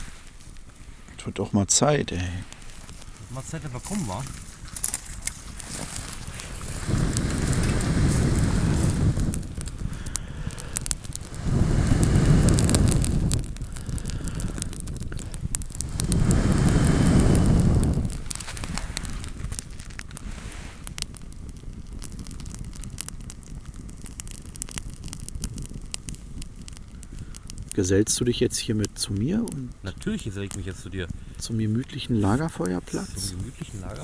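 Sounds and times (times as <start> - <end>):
campfire crackling with pops: 0.0 - 34.0
low rush of air: 6.0 - 27.8.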